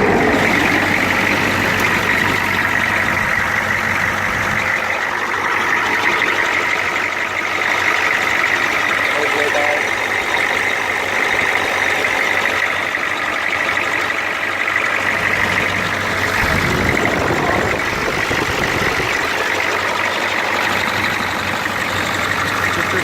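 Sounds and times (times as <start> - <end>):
low rumble: 0.0 - 5.2, 15.1 - 19.9
constant high whine: 0.0 - 23.0
diesel engine idling: 0.0 - 23.0.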